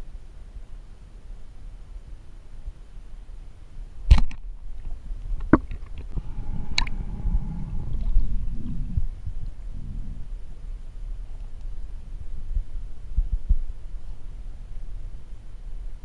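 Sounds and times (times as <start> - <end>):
water sloshing and gurgling: 4.1 - 10.4.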